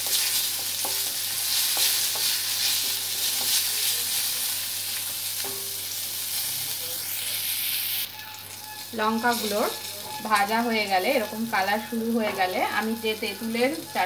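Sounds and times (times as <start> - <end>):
chillies sizzling in oil: 0.0 - 14.0.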